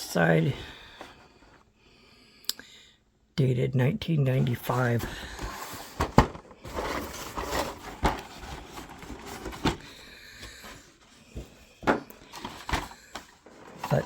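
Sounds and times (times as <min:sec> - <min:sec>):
cardboard rustling: 0:04.4 - 0:14.0.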